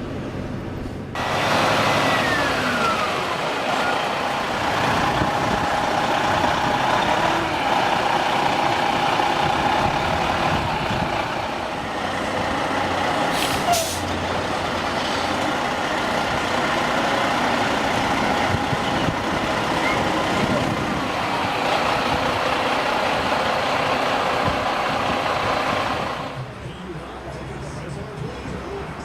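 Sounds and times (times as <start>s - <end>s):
heavy truck engine running: 0.0s - 29.0s.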